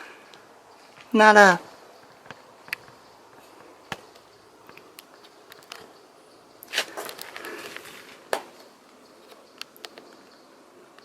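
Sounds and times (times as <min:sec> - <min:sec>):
loud scraping rustle: 0:06.7 - 0:08.3.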